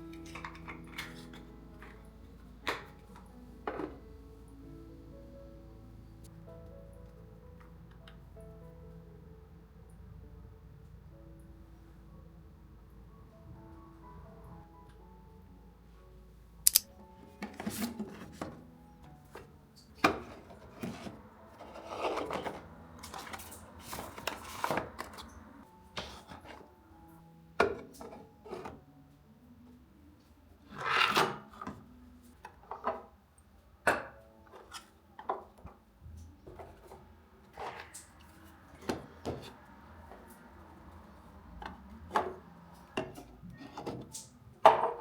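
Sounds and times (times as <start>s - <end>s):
soft background music: 0.0s - 45.0s
rubbing or scraping: 20.2s - 25.3s.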